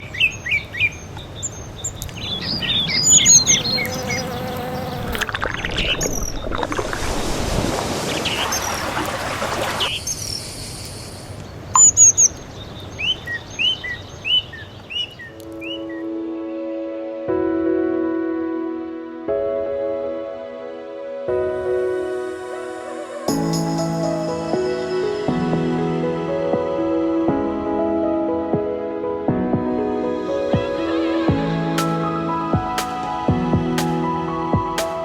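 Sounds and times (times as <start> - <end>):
birds chirping and singing: 0.0 - 6.7, 8.2 - 16.1
insects buzzing: 2.1 - 11.4
river water flowing: 3.2 - 11.7
soft background music: 15.2 - 35.0.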